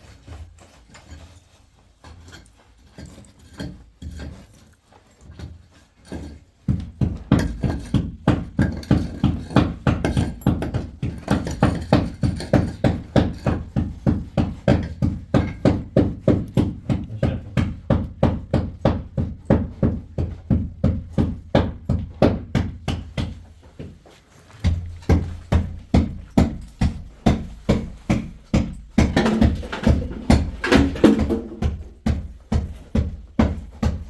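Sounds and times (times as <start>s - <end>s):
rhythmic knocking: 24.7s - 34.0s.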